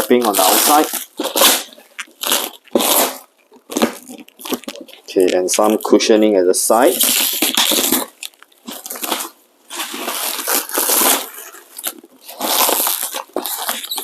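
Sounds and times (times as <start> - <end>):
plastic packaging rustling: 0.0 - 14.0.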